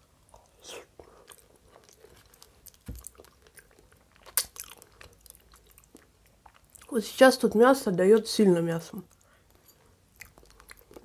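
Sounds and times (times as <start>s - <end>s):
close chewing with mouth clicks: 0.2s - 7.0s, 9.0s - 11.0s.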